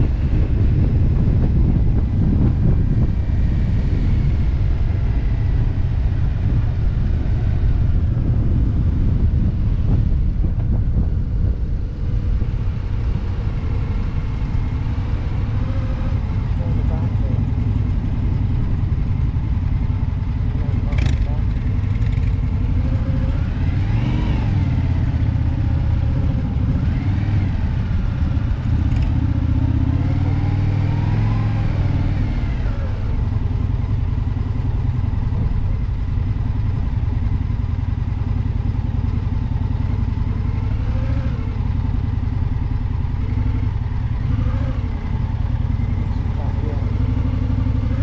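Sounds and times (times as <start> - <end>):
wind noise: 0.0 - 37.7
motorcycle engine running: 0.0 - 48.0.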